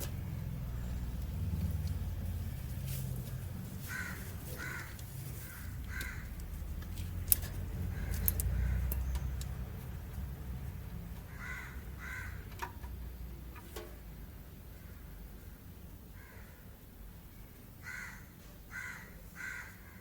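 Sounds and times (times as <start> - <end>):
low rumble: 0.0 - 11.2
bird calls: 3.6 - 6.3
sharp clicks: 5.8 - 10.2.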